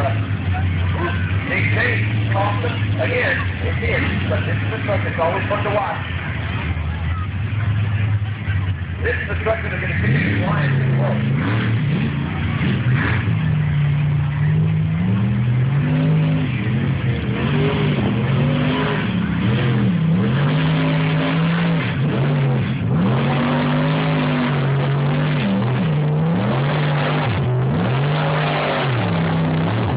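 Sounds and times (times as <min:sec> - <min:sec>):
truck engine revving hard: 0:00.0 - 0:29.9.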